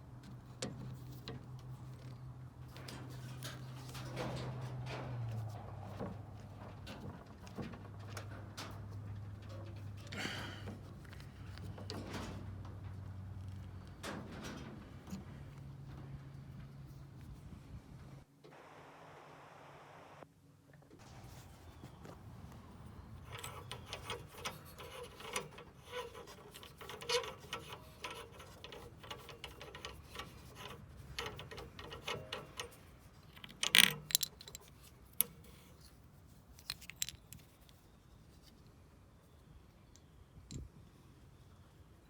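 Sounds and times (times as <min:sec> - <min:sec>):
metal parts clinking and rattling: 0:23.1 - 0:37.8.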